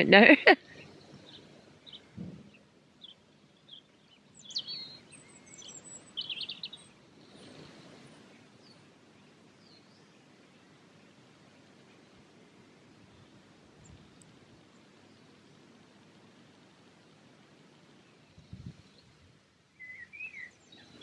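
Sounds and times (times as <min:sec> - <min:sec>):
faint outdoor background noise: 0:00.0 - 0:21.0
songbirds chirping and singing: 0:00.6 - 0:12.1, 0:19.8 - 0:21.0.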